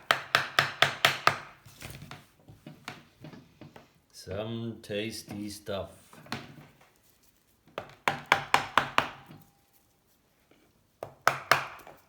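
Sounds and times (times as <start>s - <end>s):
hammer tapping wooden wedges: 0.0s - 1.6s, 7.7s - 9.5s, 11.0s - 12.0s.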